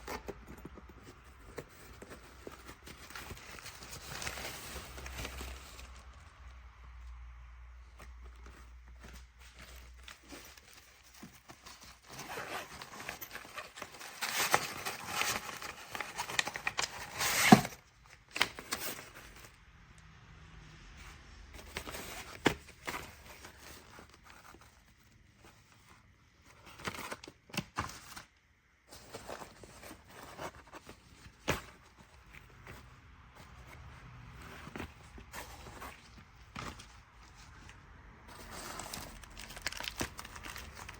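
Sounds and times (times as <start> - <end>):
packaging crinkling and tearing: 38.4 - 40.9.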